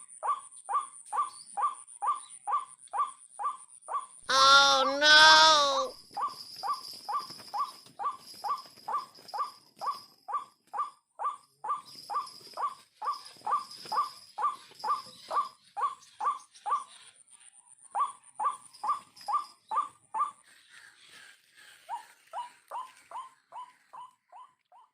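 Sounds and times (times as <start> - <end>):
waterhen calling: 4.3 - 5.9.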